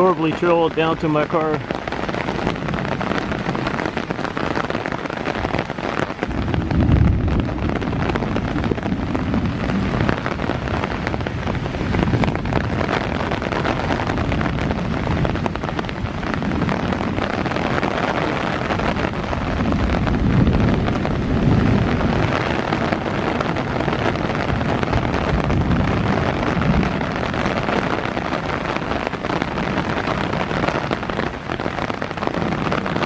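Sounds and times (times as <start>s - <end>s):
heavy rain pattering: 0.0s - 33.0s
low rumble: 6.2s - 17.5s.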